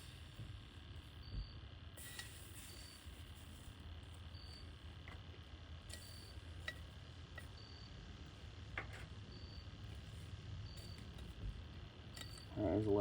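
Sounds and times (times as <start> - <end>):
coals clicking onto metal lid: 12.1 - 12.6.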